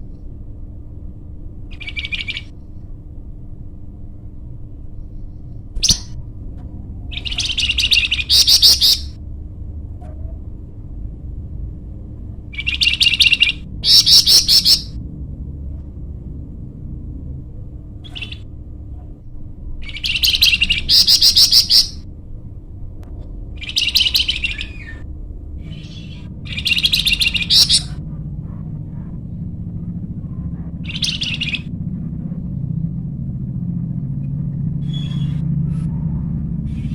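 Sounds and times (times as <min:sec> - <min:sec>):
steady low hum: 0:00.0 - 0:36.9
nightingale singing: 0:01.7 - 0:02.6, 0:05.8 - 0:06.2, 0:07.1 - 0:09.2, 0:12.5 - 0:15.0, 0:19.8 - 0:22.0, 0:23.6 - 0:25.0, 0:25.6 - 0:28.0, 0:30.8 - 0:31.7.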